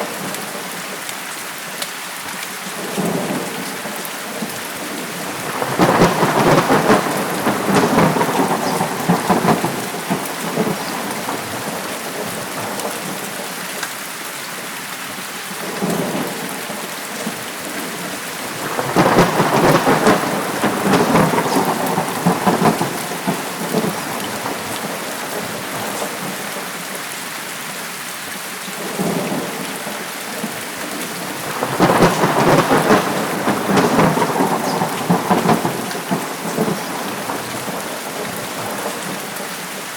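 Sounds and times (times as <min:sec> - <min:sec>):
steady rain: 0:00.0 - 0:39.9
rolling thunder: 0:04.3 - 0:13.2, 0:15.6 - 0:26.4, 0:30.4 - 0:39.4.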